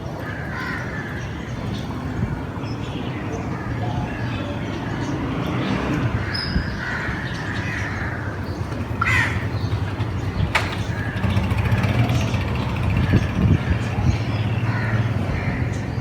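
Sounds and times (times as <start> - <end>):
low traffic rumble: 0.0 - 16.0
crow cawing: 9.0 - 9.5, 14.7 - 15.6.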